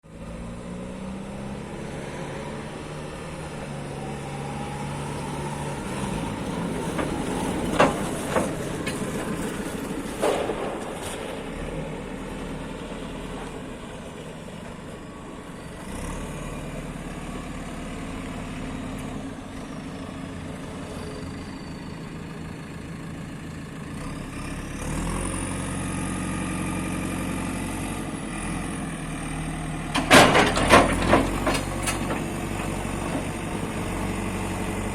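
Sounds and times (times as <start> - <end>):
diesel engine running: 0.0 - 34.9
sharp metallic clunks: 10.2 - 11.5, 29.9 - 32.6.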